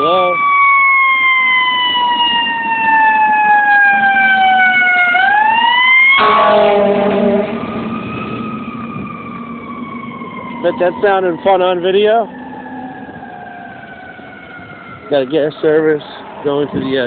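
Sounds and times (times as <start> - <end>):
fire truck siren winding: 0.0 - 16.9
air horn blast: 6.1 - 8.0.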